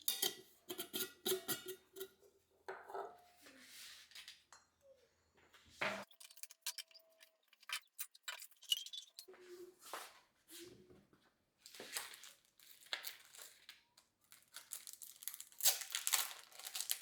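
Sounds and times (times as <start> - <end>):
kitchenware clicking and clinking: 0.0 - 3.3, 5.8 - 9.3.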